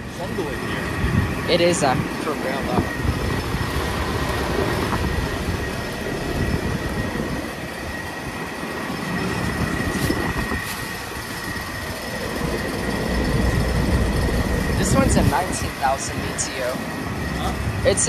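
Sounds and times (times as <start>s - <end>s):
constant high whine: 0.0s - 18.0s
heat pump fans and compressors: 0.0s - 18.0s.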